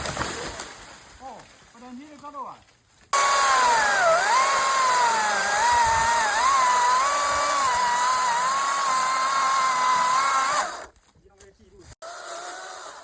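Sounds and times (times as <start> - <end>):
battery chainsaw whine: 3.2 - 10.9.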